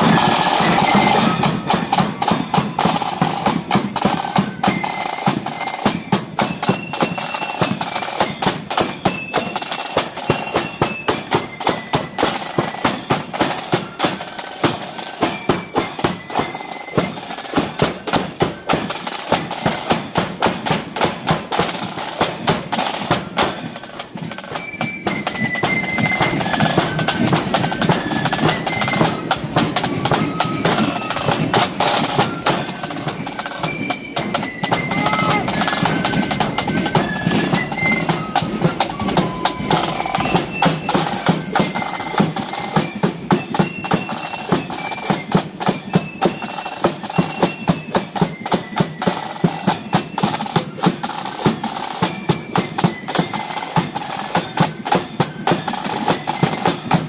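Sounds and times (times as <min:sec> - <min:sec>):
flutes playing melody: 0:00.0 - 0:57.0
snare drum rolls: 0:00.0 - 0:57.0.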